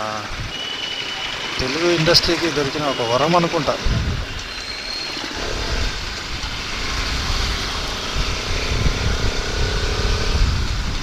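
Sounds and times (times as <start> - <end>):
motorcycle engine running: 0.0 - 11.0
wind rushing over microphone: 3.6 - 11.0.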